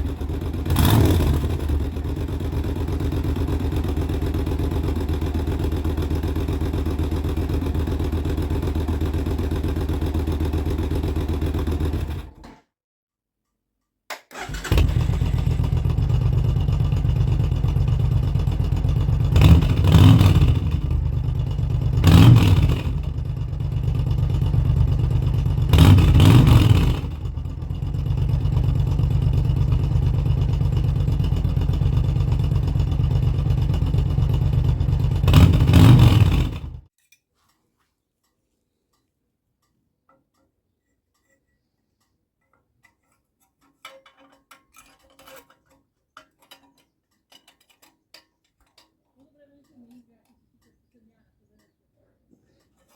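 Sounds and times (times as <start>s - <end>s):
motorcycle engine idling: 0.0s - 12.4s, 14.4s - 36.9s.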